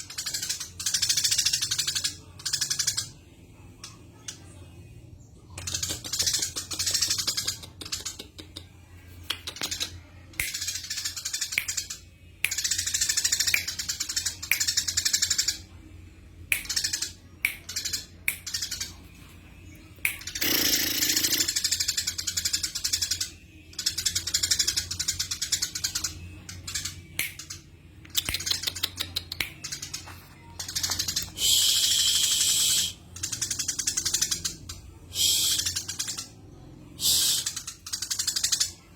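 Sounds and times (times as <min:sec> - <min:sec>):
sparrow rattling chatter: 0:05.5 - 0:08.6, 0:09.3 - 0:15.7, 0:19.9 - 0:36.4, 0:37.0 - 0:38.9
sparrow chattering: 0:20.0 - 0:23.2.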